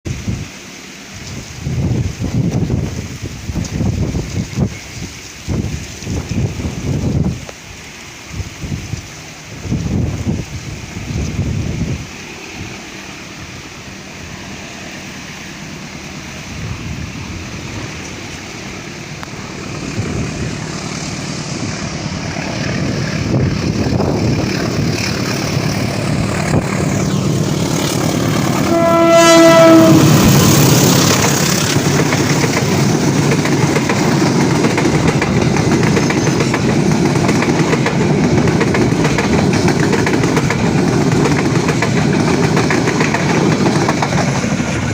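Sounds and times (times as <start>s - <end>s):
train rumbling past: 0.1s - 44.9s
locomotive horn blast: 28.4s - 30.7s.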